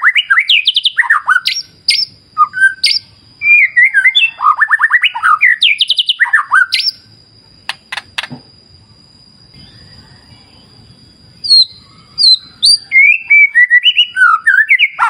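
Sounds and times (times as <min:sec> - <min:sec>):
bird singing whistles and trills: 0:00.0 - 0:07.1, 0:09.4 - 0:15.0
sharp clicks: 0:07.6 - 0:08.4
thin steady high tone: 0:08.7 - 0:15.0.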